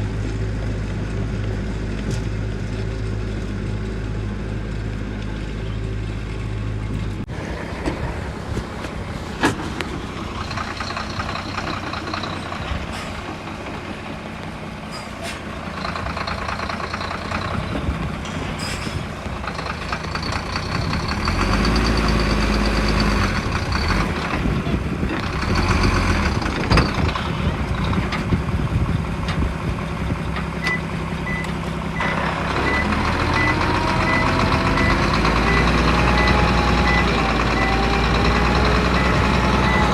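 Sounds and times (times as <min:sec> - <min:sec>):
diesel machinery engines revving: 0:00.0 - 0:39.9
reversing alarm beeping: 0:30.6 - 0:39.9.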